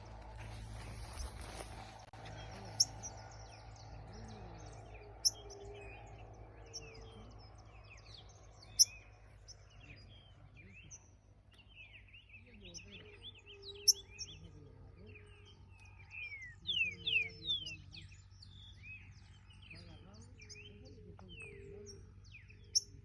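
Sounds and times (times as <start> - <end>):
birds chirping and warbling: 0.0 - 23.0
low background hum: 0.0 - 23.0.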